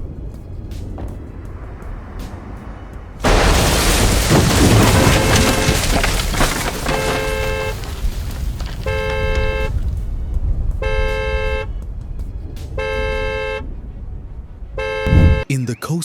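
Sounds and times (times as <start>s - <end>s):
car alarm horn blasts: 6.5s - 9.9s, 10.8s - 11.8s, 12.7s - 14.0s, 14.6s - 15.4s
loud rushing noise: 15.0s - 15.4s.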